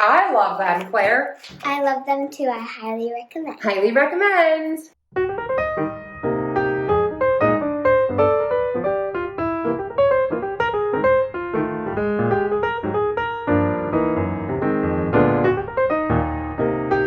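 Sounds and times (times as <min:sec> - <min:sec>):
brisk piano melody: 0:05.1 - 0:17.0.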